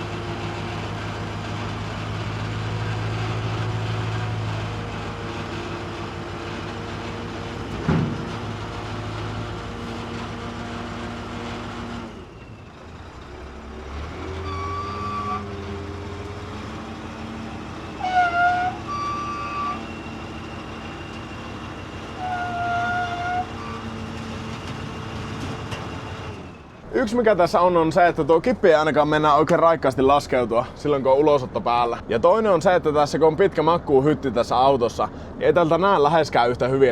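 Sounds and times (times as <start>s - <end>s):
diesel engine running: 0.0s - 36.9s
short tones: 14.3s - 15.8s, 18.0s - 24.2s.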